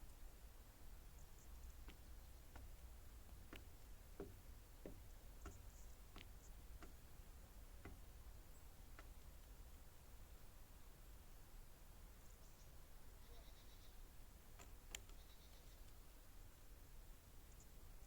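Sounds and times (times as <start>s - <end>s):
faint sharp clicks: 14.5s - 16.0s.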